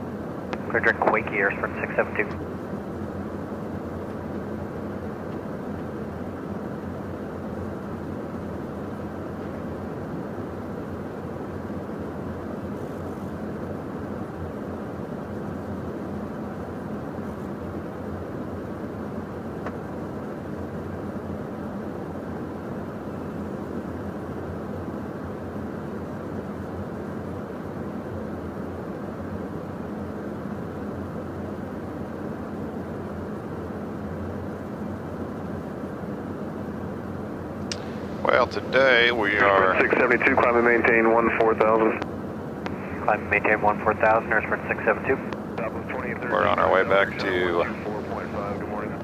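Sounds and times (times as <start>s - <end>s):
low constant hum: 0.0s - 49.0s
muffled jet engine and airflow: 0.0s - 49.0s
jet cockpit rush: 0.6s - 2.7s, 37.7s - 49.0s.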